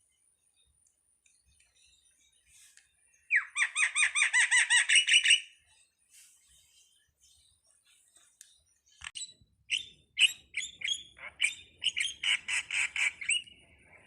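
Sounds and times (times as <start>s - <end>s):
starling calling: 2.6s - 6.3s, 9.0s - 14.0s.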